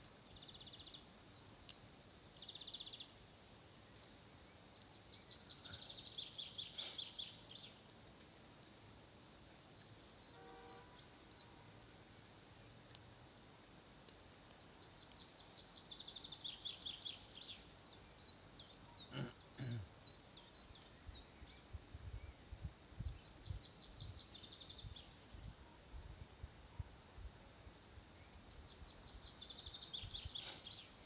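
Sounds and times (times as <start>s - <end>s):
songbird singing high trills: 4.9s - 11.6s, 14.9s - 25.4s, 28.2s - 31.0s.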